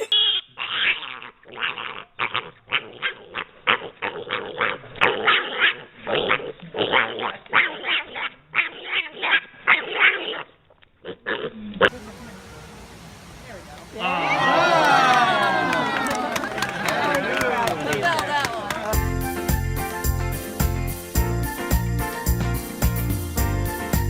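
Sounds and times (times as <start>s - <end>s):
dog barking and growling: 0.6s - 11.7s.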